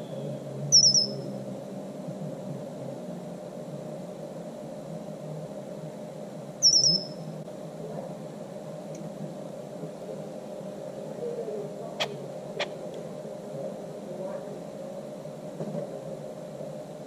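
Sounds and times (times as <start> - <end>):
songbird chirps: 0.0 - 1.4, 6.6 - 7.3
low background noise: 0.0 - 17.0.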